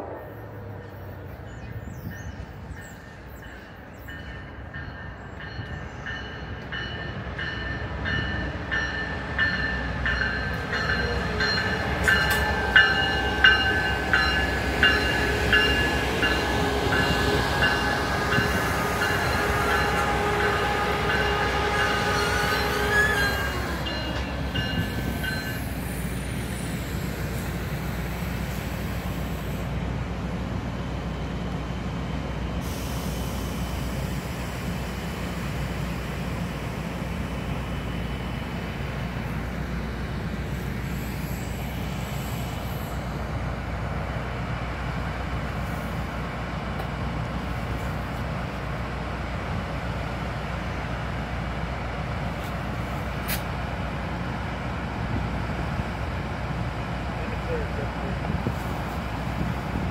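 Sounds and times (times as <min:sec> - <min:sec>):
train rumbling: 0:00.0 - 0:59.9
train horn: 0:16.3 - 0:23.9.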